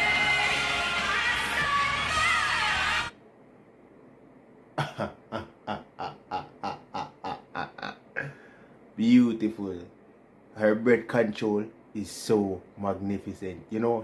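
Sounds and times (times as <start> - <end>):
music playback: 0.0 - 3.2.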